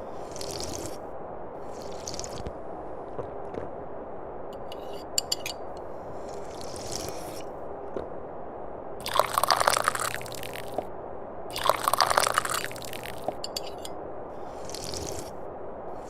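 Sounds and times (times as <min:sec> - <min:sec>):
tea slurping from a cup: 0:00.0 - 0:01.0, 0:01.6 - 0:02.5, 0:06.1 - 0:07.5, 0:09.0 - 0:10.9, 0:11.5 - 0:15.4.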